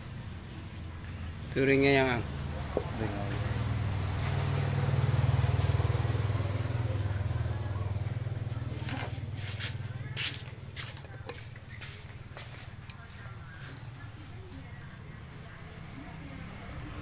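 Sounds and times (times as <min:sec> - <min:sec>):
motorcycle engine rumbling: 0:00.0 - 0:17.0.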